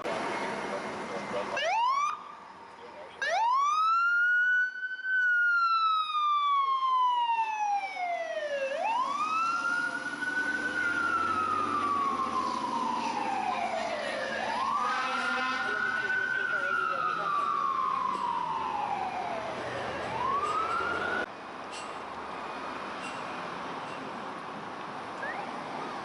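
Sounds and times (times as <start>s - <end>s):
fire engine siren wailing: 0.0s - 21.3s
faint second siren: 1.4s - 21.3s, 25.2s - 25.7s.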